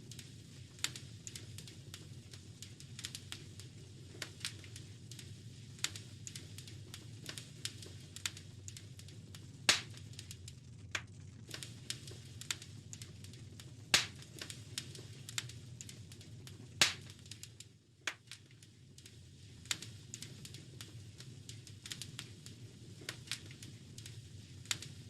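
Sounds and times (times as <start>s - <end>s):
wood fire crackling: 0.0s - 25.0s
fire popping: 0.1s - 25.0s
low steady rumble: 4.8s - 18.1s.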